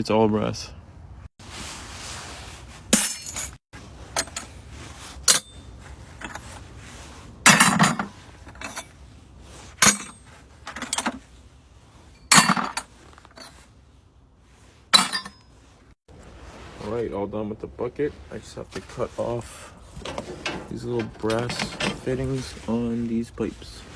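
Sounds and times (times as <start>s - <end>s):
scrap metal clinking into bucket: 3.0s - 4.5s, 7.5s - 8.9s, 9.8s - 11.2s, 12.2s - 13.6s, 15.0s - 15.4s, 20.0s - 22.3s.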